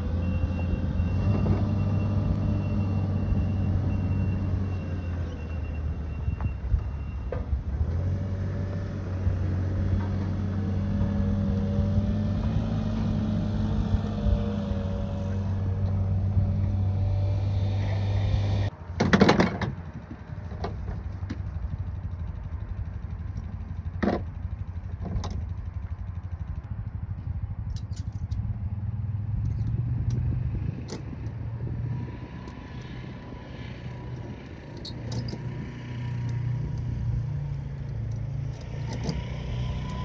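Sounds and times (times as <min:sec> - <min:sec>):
vehicle engine running: 0:19.9 - 0:40.0.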